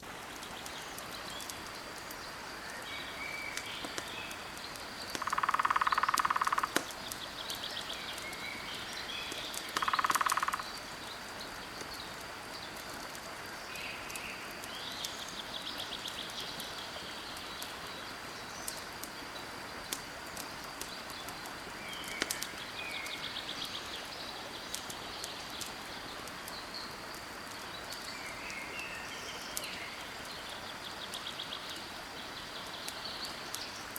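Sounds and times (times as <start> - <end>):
campfire crackling: 0.0 - 33.9
birds chirping: 0.2 - 12.8.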